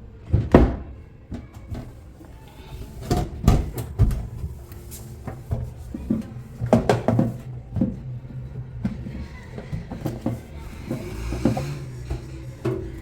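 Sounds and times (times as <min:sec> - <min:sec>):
kitchen knocks and bumps: 0:02.9 - 0:13.0.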